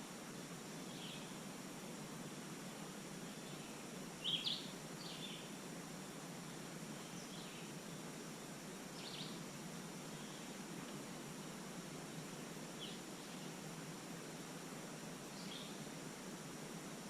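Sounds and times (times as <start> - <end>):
low background hiss: 0.0 - 17.0.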